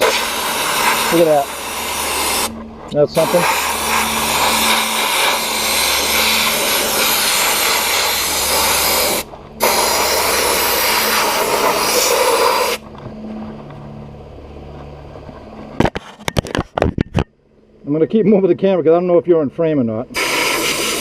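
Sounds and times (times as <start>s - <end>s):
sandblast gun hissing: 0.0s - 2.6s, 3.2s - 12.8s, 20.2s - 21.0s
low steady hum: 0.0s - 20.2s.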